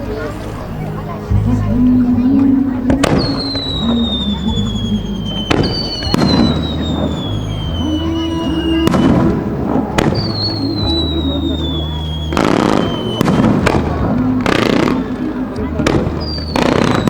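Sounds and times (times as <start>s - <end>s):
firework bangs: 2.9s - 17.0s
whistling firework shells: 3.0s - 15.1s, 15.9s - 17.0s.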